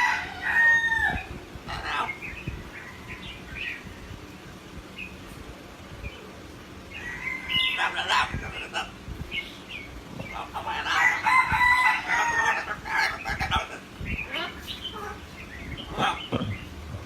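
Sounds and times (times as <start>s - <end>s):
bird crowing calls: 6.9s - 9.0s, 10.3s - 17.0s.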